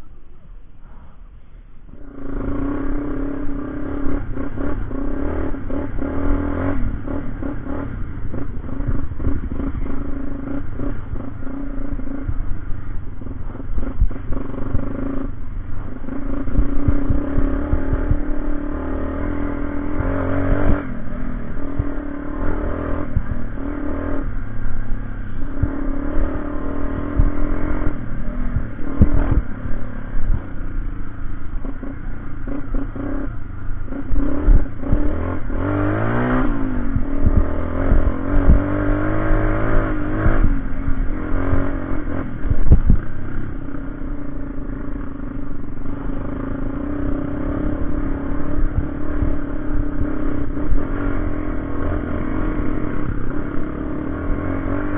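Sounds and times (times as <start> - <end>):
motorcycle engine revving: 0.9 - 54.9.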